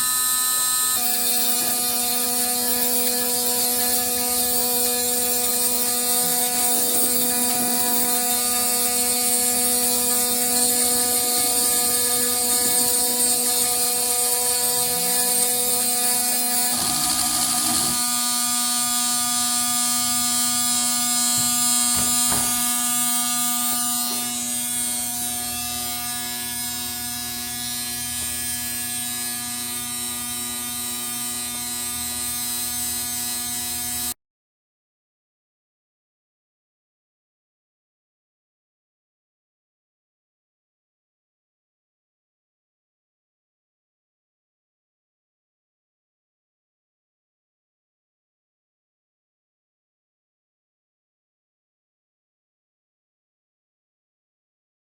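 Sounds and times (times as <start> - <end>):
stepper motors whining: 6.2 - 18.2.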